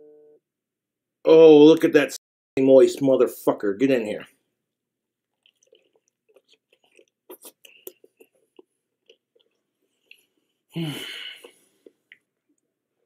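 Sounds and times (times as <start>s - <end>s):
person chewing food: 5.2s - 13.0s
lip and mouth smacks: 5.3s - 10.3s.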